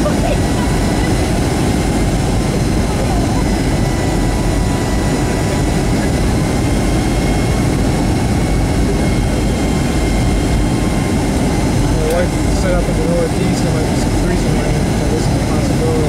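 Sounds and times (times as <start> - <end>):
high steady whine: 0.0 - 16.0
jet engine cabin rumble: 0.0 - 16.0.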